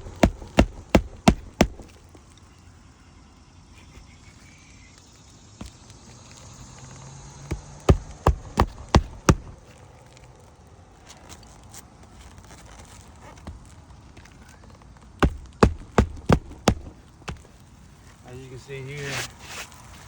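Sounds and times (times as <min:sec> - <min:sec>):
hammer striking roofing nail: 0:00.0 - 0:02.0, 0:07.5 - 0:09.6, 0:15.2 - 0:17.5.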